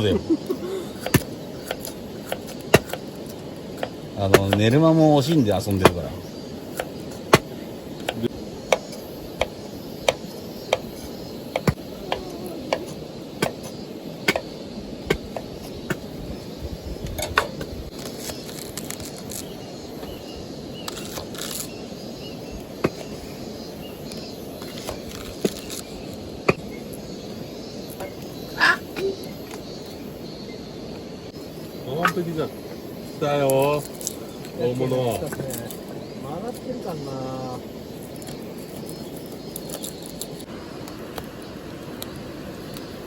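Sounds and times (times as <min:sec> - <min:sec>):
low steady hiss: 0:25.7 - 0:43.0.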